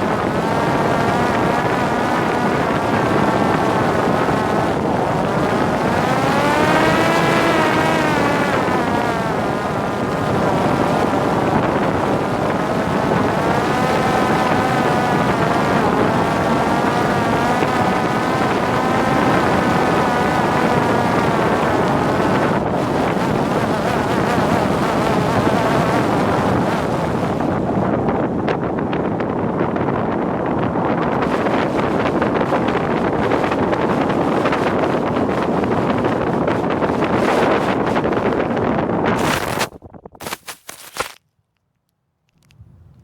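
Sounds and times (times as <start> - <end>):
wind rush on microphone: 0.0 - 41.2, 42.4 - 43.0
drone motor whining: 0.2 - 21.5.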